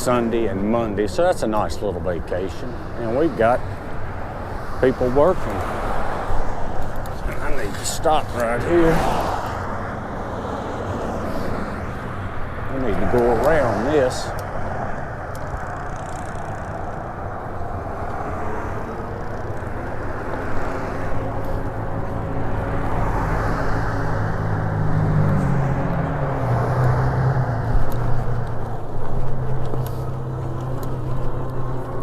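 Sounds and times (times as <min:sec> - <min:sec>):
wind and road noise: 0:00.0 - 0:32.0
vehicle engine running: 0:14.4 - 0:32.0.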